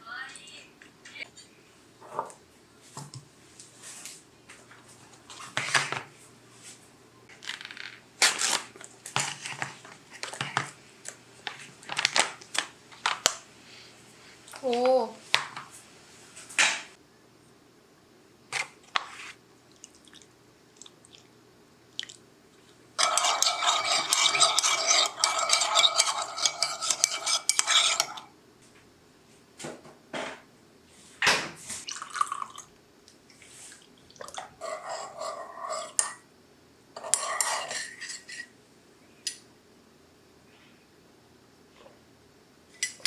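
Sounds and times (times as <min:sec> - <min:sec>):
dishes and cutlery clinking: 0:23.0 - 0:28.3.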